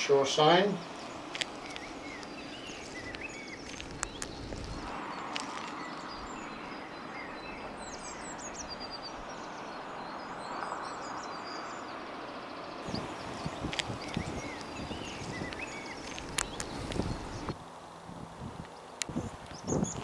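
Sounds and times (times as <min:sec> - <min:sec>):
small birds chirping: 0:00.0 - 0:17.6, 0:18.2 - 0:20.0
outdoor background hiss: 0:00.0 - 0:20.0
footsteps on ground: 0:01.0 - 0:06.1, 0:12.9 - 0:17.6.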